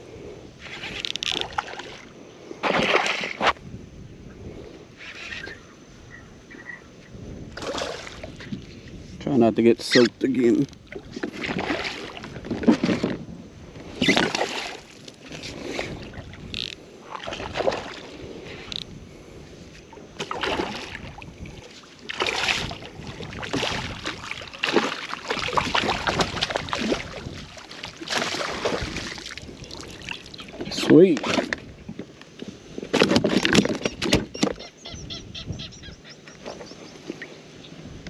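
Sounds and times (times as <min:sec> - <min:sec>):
wind on microphone: 0:00.0 - 0:38.0
water slapping kayak hull: 0:00.6 - 0:03.5, 0:10.4 - 0:34.6.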